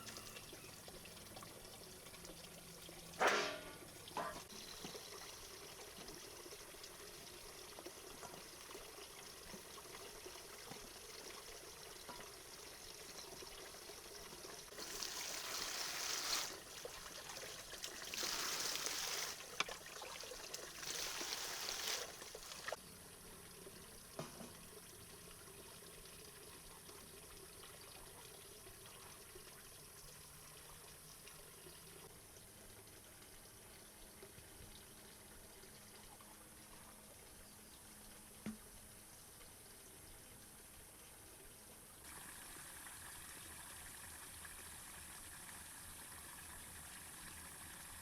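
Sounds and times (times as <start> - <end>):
water pouring: 0.0 - 22.8
faint water trickle: 0.0 - 48.0.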